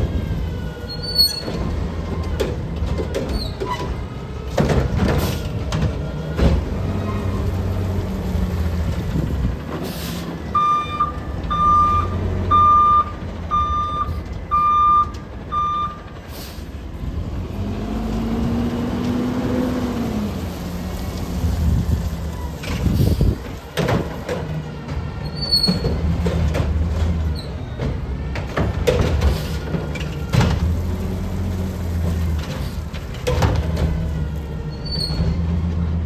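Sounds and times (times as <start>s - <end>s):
garbage truck diesel engine: 0.0s - 36.0s
reversing alarm beeping: 10.5s - 16.1s.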